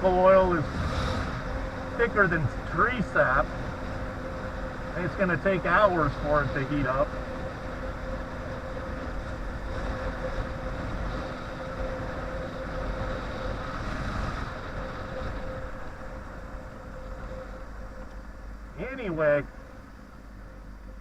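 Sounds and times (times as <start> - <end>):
wind noise on microphone: 0.0 - 2.8, 7.1 - 17.8
motorcycle engine running: 0.0 - 21.0.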